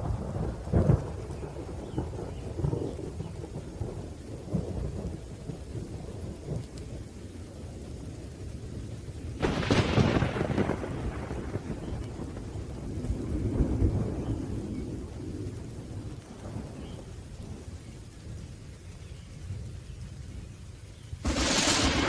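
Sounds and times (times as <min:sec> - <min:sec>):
low rolling thunder: 0:00.0 - 0:20.6, 0:21.2 - 0:22.0
rain: 0:00.0 - 0:22.0
sharp thunderclap: 0:09.4 - 0:12.8, 0:21.2 - 0:22.0.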